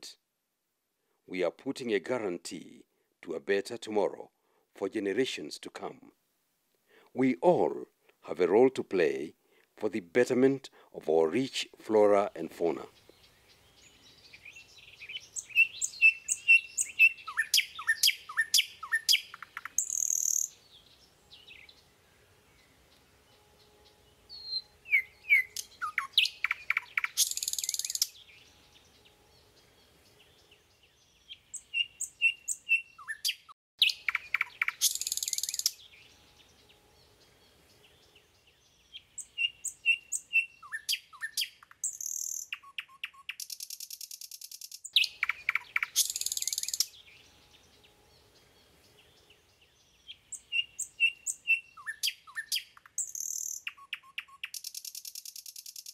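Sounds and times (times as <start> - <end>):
bird whistled song: 13.0 - 21.9, 23.3 - 29.4, 30.2 - 37.1, 37.8 - 48.0, 48.6 - 55.9.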